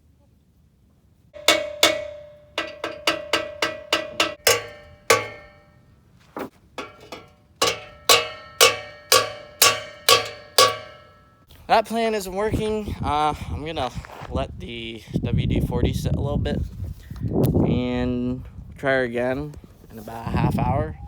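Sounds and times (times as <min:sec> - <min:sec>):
hammer striking metal pipe: 0:01.4 - 0:05.7, 0:06.8 - 0:11.4.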